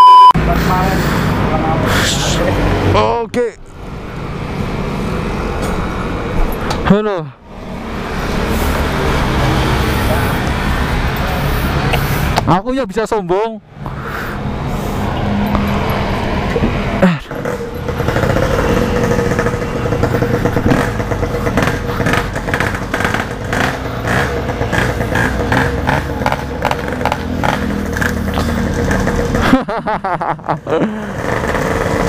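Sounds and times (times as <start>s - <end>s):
two-stroke motorcycle engine running: 17.3s - 32.0s.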